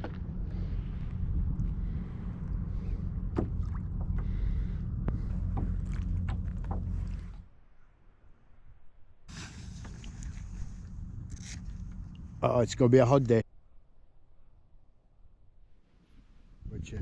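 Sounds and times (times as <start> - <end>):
low rumble on microphone: 0.0 - 7.6, 9.3 - 13.4
knocks and clicks from kayak: 3.3 - 4.3.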